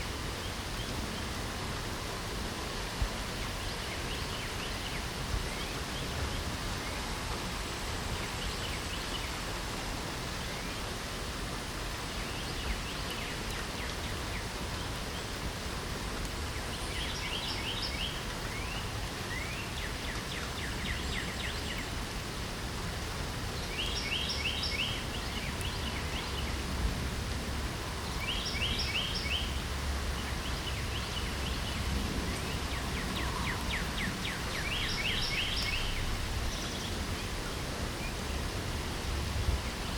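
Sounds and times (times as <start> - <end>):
light rain hissing: 0.0 - 39.9
songbird trilling: 32.7 - 37.0.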